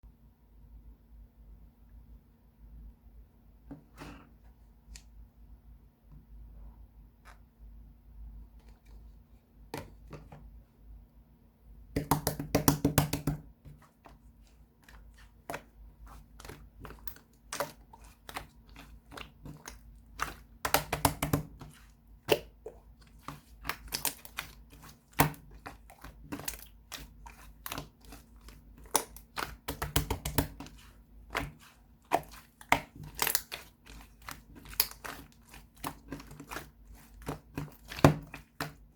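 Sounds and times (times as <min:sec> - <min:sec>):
slime clicking and popping: 0:32.1 - 0:33.6.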